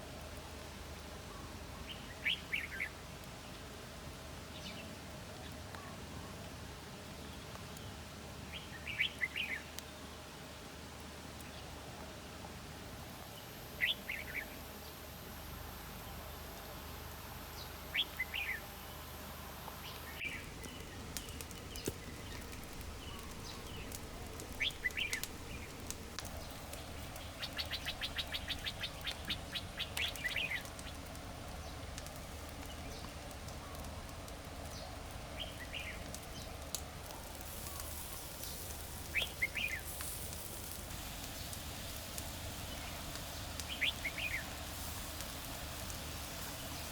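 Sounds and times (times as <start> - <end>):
steady background noise: 0.0 - 46.9
birds chirping: 19.8 - 40.4, 42.5 - 45.0.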